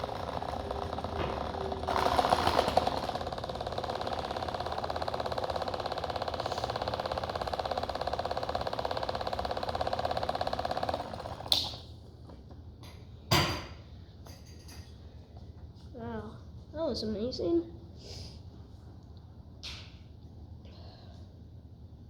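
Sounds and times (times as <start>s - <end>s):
toy motor buzzing rattle: 0.0s - 11.6s.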